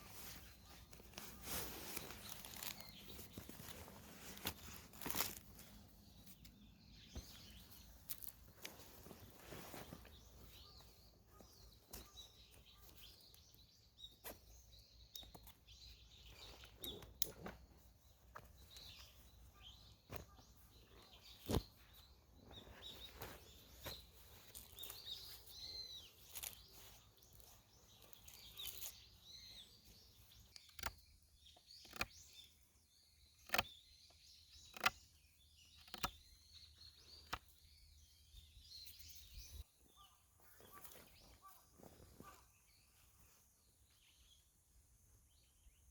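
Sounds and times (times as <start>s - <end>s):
birds chirping: 0.0s - 45.9s
sharp knocks and clicks: 33.4s - 33.7s.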